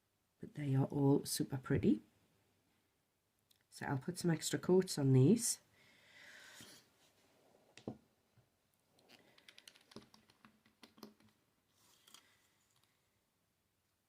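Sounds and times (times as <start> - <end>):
soft rustle: 11.6 - 13.2.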